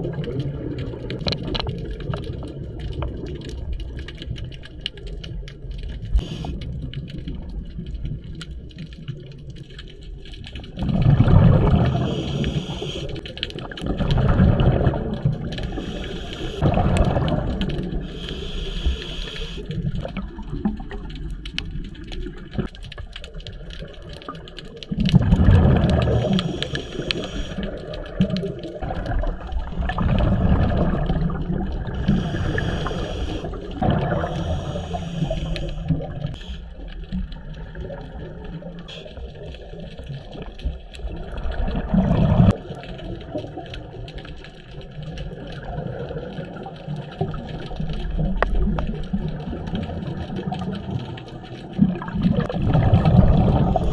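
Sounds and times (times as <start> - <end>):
exhaled bubbles rushing: 0.0 - 5.4, 10.6 - 53.9
underwater rumble: 0.0 - 53.9
regulator inhalation hiss: 6.2 - 6.6, 11.9 - 13.2, 15.6 - 16.6, 18.0 - 19.7, 26.2 - 27.6, 32.0 - 36.7.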